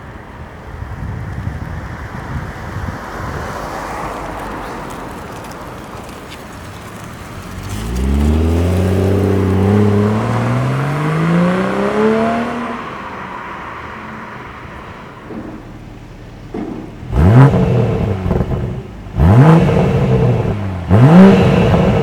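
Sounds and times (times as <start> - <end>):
car engine accelerating: 3.2 - 15.2, 16.9 - 22.0.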